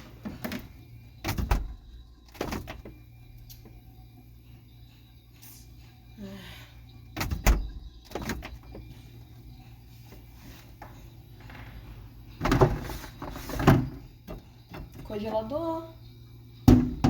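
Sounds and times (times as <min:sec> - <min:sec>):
refrigerator door opening and shutting: 0:00.0 - 0:03.0, 0:07.1 - 0:08.9, 0:11.2 - 0:15.4, 0:16.6 - 0:17.0
thuds and rattles: 0:11.4 - 0:15.1, 0:16.7 - 0:17.0.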